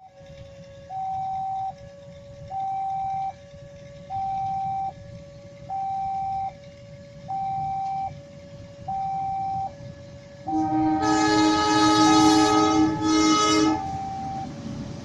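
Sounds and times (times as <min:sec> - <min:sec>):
two-tone electronic warning signal: 0:00.0 - 0:01.8, 0:02.5 - 0:03.4, 0:04.0 - 0:05.0, 0:05.6 - 0:06.6, 0:07.3 - 0:08.2, 0:08.8 - 0:09.8, 0:10.4 - 0:14.6
low rumble: 0:00.0 - 0:15.0.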